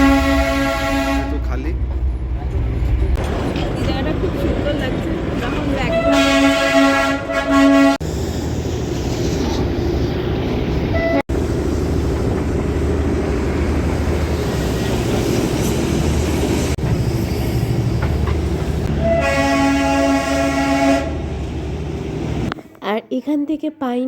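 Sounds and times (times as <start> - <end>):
locomotive horn: 0.0 - 1.5, 5.8 - 8.0, 10.9 - 11.3, 18.8 - 21.3
train carriage rumbling: 0.0 - 22.6.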